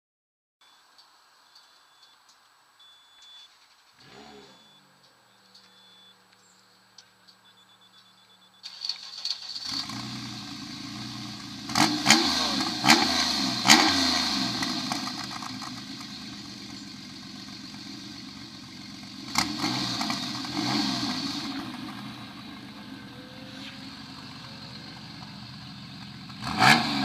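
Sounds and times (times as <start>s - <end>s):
car engine idling: 3.6s - 27.0s
car engine starting and revving: 4.0s - 6.1s, 8.6s - 27.0s
exhaust cracks: 8.7s - 27.0s.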